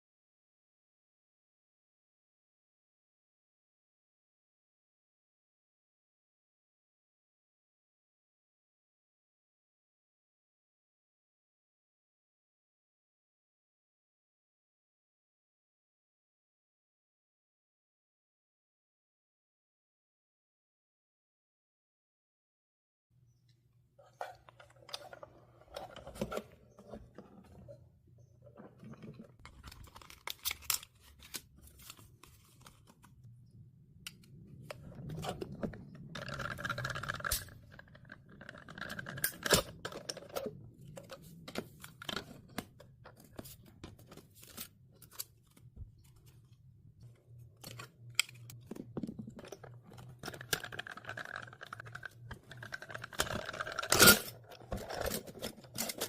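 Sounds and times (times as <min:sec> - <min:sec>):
hands handling paper and plastic: 0:28.6 - 0:33.4, 0:34.0 - 0:56.0.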